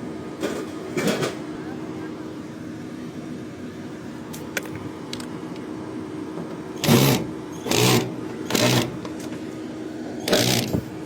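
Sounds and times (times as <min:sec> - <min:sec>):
cordless drill whirring: 0:06.8 - 0:08.9, 0:10.2 - 0:10.8.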